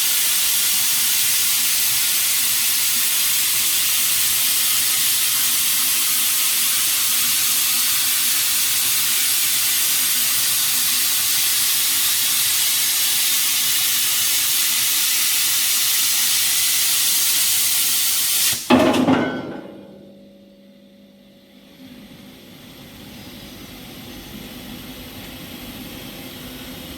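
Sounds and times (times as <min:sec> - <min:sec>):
plasma torch hissing: 0:00.0 - 0:18.7.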